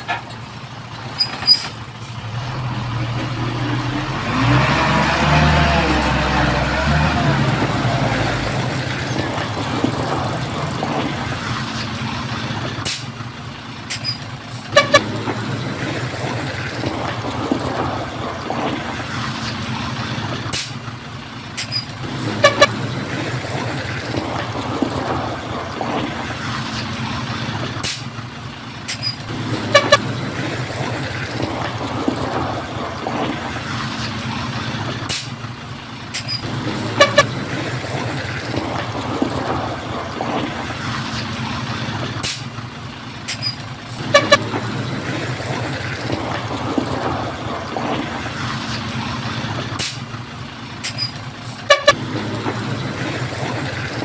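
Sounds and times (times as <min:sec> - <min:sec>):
diesel engine of heavy machinery: 0:00.0 - 0:54.0.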